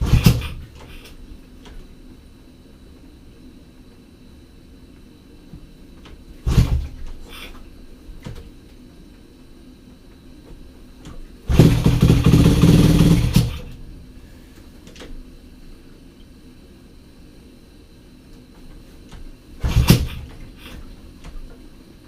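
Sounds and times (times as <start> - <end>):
motorcycle engine starting and running: 0.0 - 0.6, 6.5 - 7.0, 11.5 - 13.8, 19.6 - 20.3.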